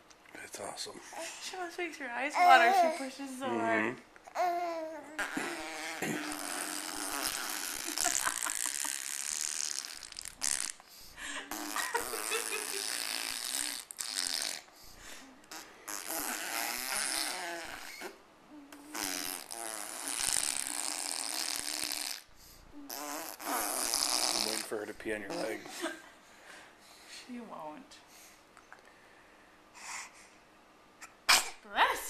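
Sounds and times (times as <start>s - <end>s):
baby blowing raspberries: 4.4s - 25.6s.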